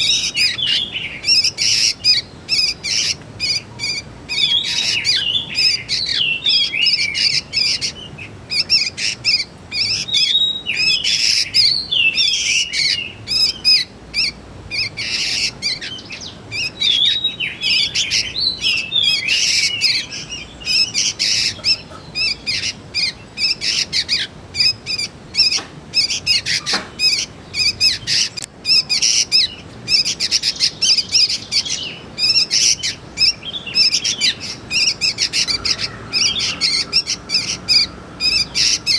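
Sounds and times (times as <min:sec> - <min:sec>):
young birds chirping: 0:00.0 - 0:38.9.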